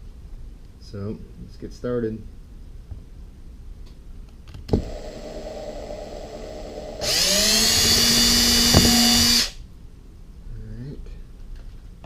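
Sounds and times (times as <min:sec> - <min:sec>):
electric drill whining: 0:04.8 - 0:09.6
drill click: 0:07.0 - 0:09.6.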